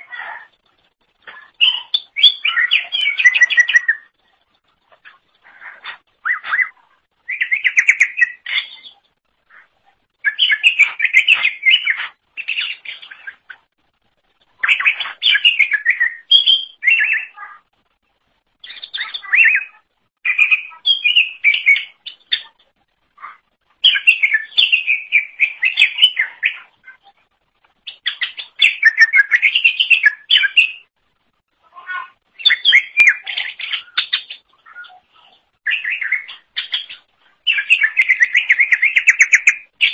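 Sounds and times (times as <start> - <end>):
bird warbling song: 0.0 - 13.8, 14.5 - 17.7, 18.6 - 27.2, 27.8 - 30.9, 31.7 - 39.9.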